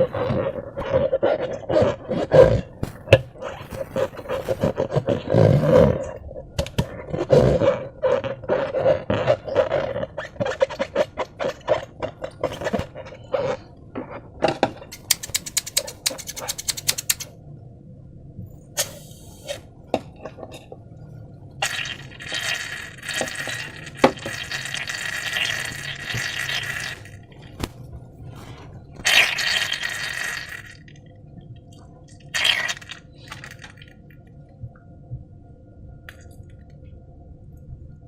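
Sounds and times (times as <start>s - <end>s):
slime squelching: 0.0s - 6.2s, 21.6s - 31.0s, 32.1s - 34.0s.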